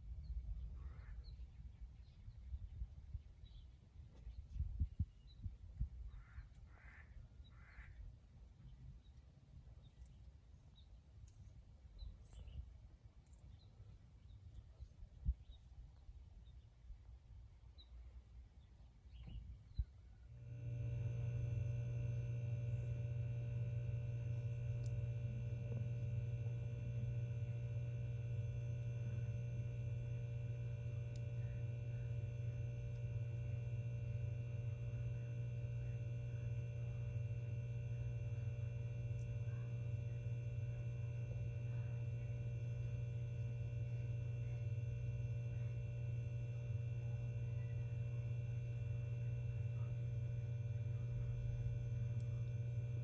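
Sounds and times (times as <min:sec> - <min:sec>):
low electrical hum: 0:00.0 - 0:53.0
faint steady tones: 0:16.8 - 0:53.0.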